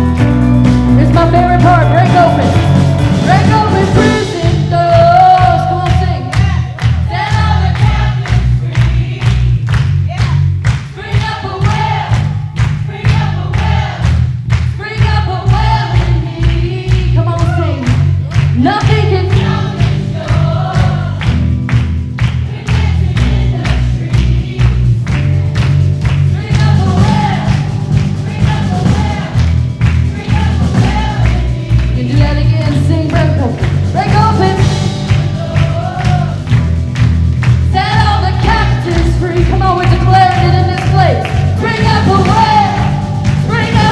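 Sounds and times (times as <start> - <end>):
heavy bass: 0.0 - 43.9
steady drum beat: 0.0 - 43.9
worship band playing: 0.0 - 43.9
voices singing: 10.9 - 14.1, 18.6 - 21.2, 26.4 - 36.5, 37.8 - 43.9.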